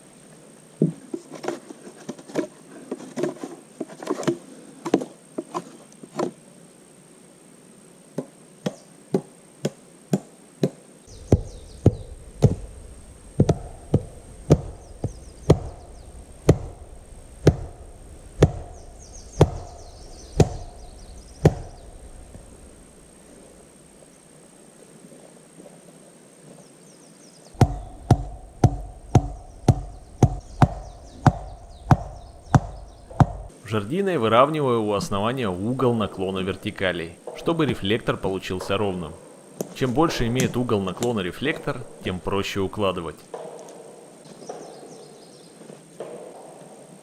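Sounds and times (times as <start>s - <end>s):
axe chopping wet wood: 13.4s - 14.8s, 15.5s - 16.8s, 17.4s - 18.8s, 19.4s - 19.8s, 20.4s - 20.8s, 21.4s - 21.8s, 27.6s - 33.5s.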